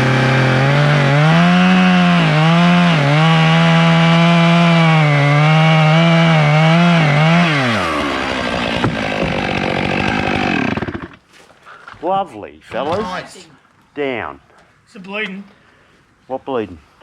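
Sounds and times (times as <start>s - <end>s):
chainsaw cutting wood: 0.0s - 11.2s.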